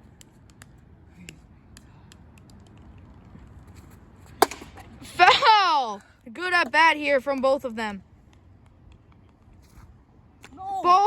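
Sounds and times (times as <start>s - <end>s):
low background noise: 0.0s - 11.0s
bat cracking on ball: 4.4s - 4.9s.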